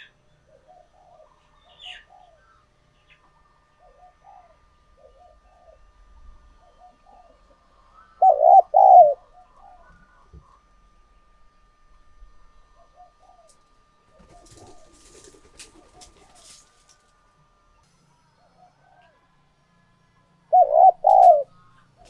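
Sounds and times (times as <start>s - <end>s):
dove cooing: 0.0s - 10.0s, 12.7s - 16.7s, 20.5s - 22.0s.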